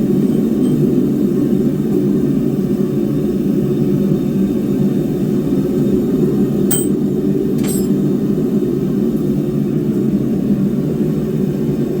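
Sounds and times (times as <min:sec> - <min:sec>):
steel tapped on steel: 0:06.7 - 0:07.0, 0:07.6 - 0:08.0.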